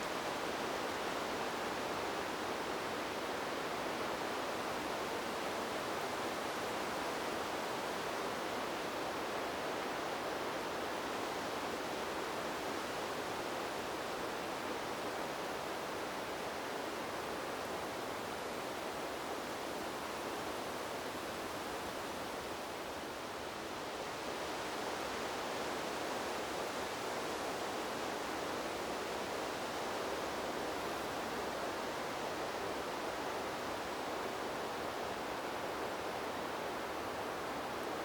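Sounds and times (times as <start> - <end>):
wind blowing through trees: 0.0 - 38.0.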